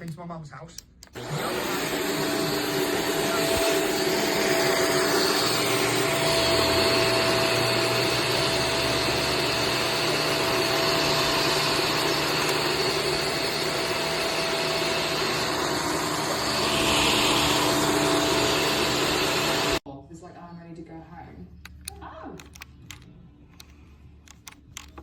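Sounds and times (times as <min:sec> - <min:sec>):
vacuum cleaner running: 0:01.2 - 0:19.8.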